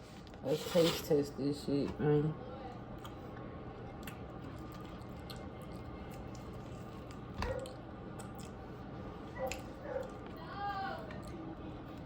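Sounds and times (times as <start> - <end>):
person chewing food: 4.0 - 8.7.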